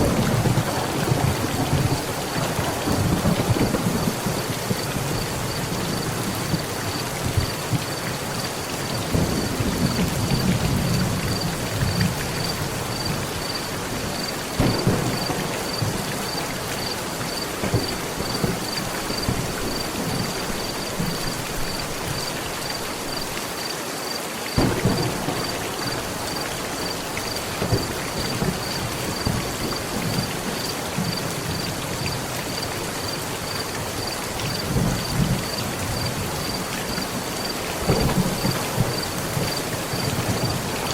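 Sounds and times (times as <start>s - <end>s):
sharp thunder claps: 0.0s - 7.8s, 9.0s - 13.6s, 14.6s - 21.8s, 24.6s - 30.4s, 37.8s - 40.9s
thunder rolling: 0.0s - 8.0s, 9.0s - 22.3s, 24.6s - 31.7s, 34.5s - 40.9s
heavy rain on a metal roof: 0.0s - 40.9s.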